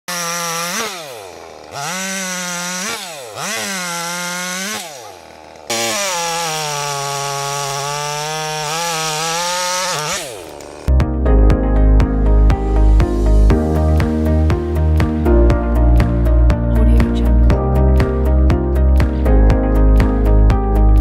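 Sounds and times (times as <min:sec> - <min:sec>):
chainsaw engine revving: 0:00.0 - 0:10.9.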